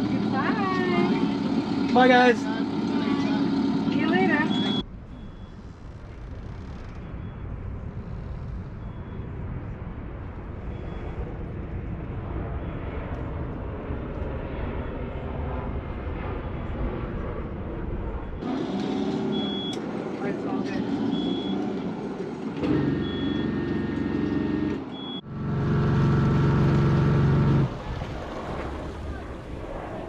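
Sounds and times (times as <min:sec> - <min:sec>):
boat diesel engine rumbling: 0:00.0 - 0:09.0.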